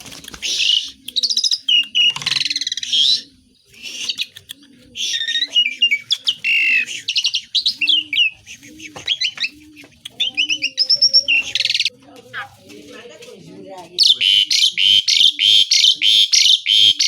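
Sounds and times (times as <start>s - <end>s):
starling singing: 0.3s - 17.0s
harsh rasping bird call: 14.0s - 17.0s.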